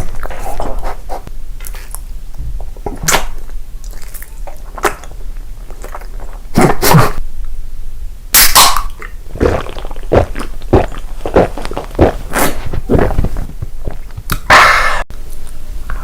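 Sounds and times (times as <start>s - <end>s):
crunchy bites: 8.4s - 14.5s
quick chewing: 9.3s - 14.5s.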